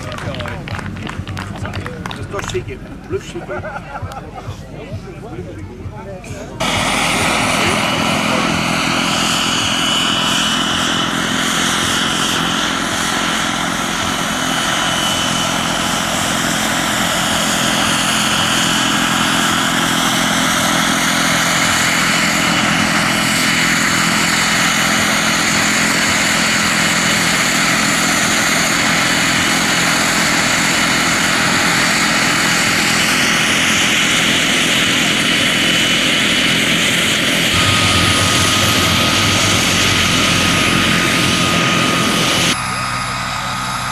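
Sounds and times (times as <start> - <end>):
helicopter rotor noise: 0.0 - 5.0, 6.4 - 43.9
model helicopter whine: 6.6 - 43.9.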